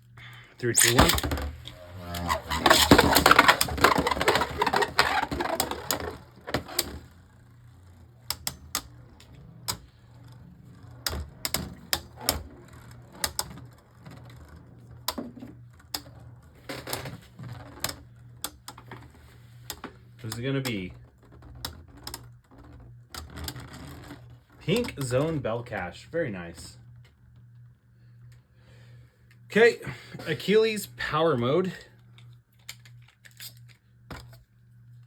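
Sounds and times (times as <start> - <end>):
spinning tops whirring and grinding: 0.6 - 27.4.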